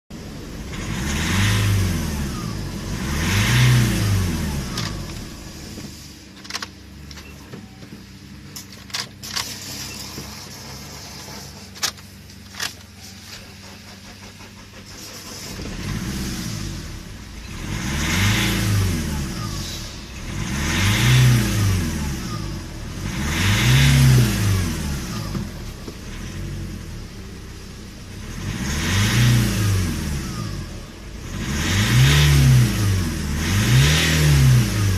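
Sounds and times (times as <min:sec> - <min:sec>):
engine idling: 0:00.1 - 0:20.5
diesel engine revving: 0:00.1 - 0:34.9.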